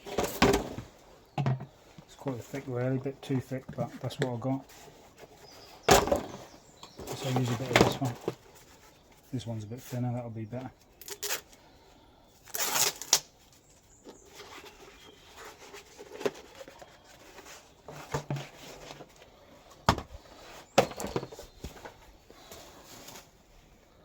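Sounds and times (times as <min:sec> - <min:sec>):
paper rustling: 0:12.5 - 0:19.8.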